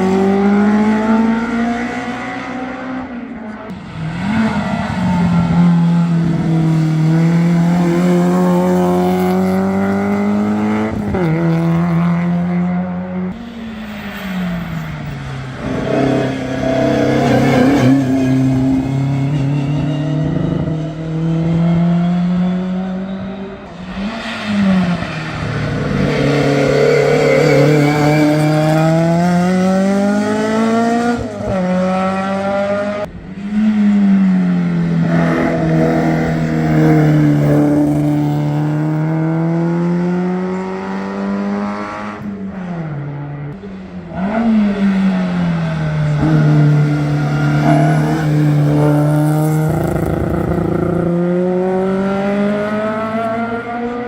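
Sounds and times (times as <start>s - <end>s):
racing car engines revving: 0.0s - 54.0s.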